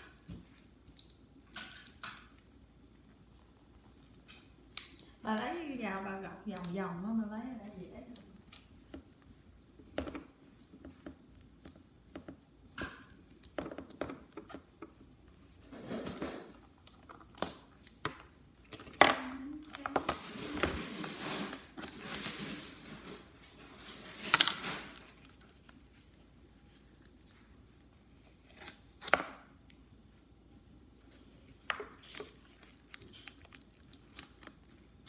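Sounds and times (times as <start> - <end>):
wrapper crinkling and rustling: 31.2 - 35.0.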